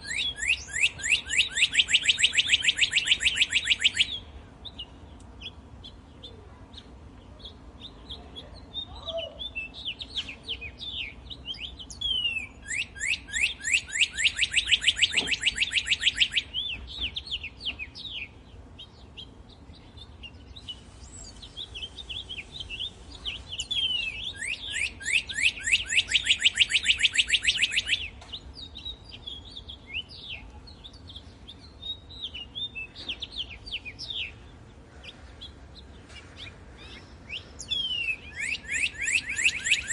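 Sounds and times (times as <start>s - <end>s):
cardinal singing whistles: 0.0s - 4.3s, 11.0s - 16.8s, 22.4s - 28.2s, 37.3s - 39.9s
bird chirps and calls: 0.0s - 39.9s.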